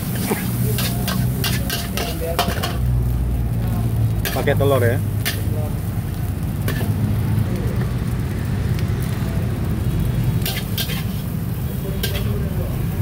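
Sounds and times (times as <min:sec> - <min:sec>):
wok burner rumble: 0:00.0 - 0:13.0
metal spatula striking wok: 0:00.1 - 0:02.8, 0:10.4 - 0:11.2, 0:12.0 - 0:12.4.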